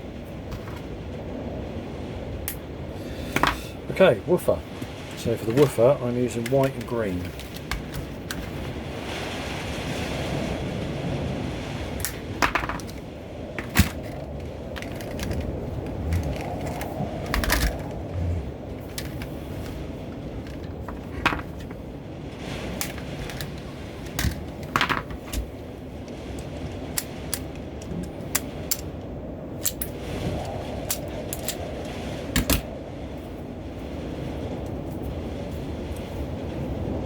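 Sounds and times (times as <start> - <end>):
low background rumble: 0.0 - 37.0
small tools clicking and clinking: 12.0 - 13.0, 13.6 - 18.0.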